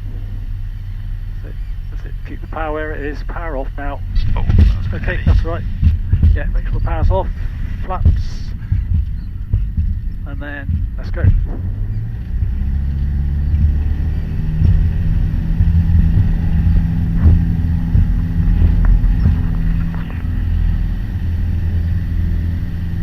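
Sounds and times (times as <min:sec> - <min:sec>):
aircraft engine and propeller drone: 0:00.0 - 0:23.0.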